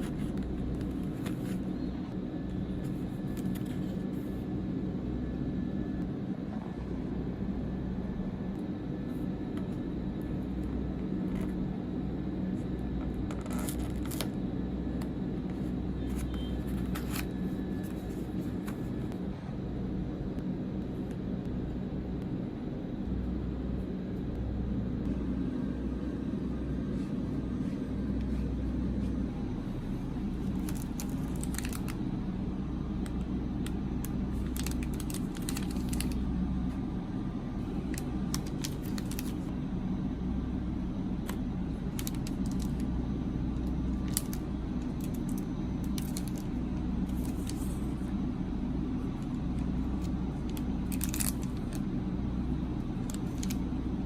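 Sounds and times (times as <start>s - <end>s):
low hum: 0.0s - 54.0s
snack packaging crinkling: 30.4s - 32.0s, 33.6s - 36.3s, 37.8s - 39.5s, 41.9s - 42.9s, 43.9s - 47.9s, 49.2s - 51.9s, 52.9s - 53.7s.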